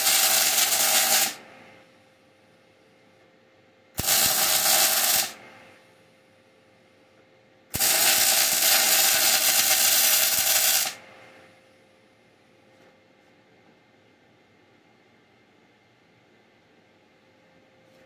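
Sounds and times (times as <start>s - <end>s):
welding arc sizzling: 0.0s - 1.4s, 4.0s - 5.4s, 7.7s - 11.0s.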